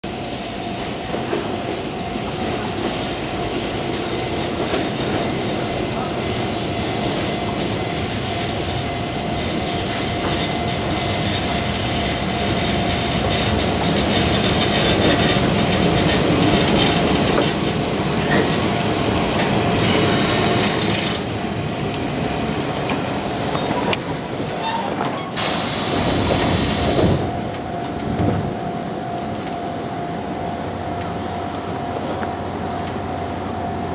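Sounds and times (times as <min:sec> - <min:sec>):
high steady train wheel squeal: 0:00.0 - 0:33.9
train running noise: 0:00.0 - 0:33.9.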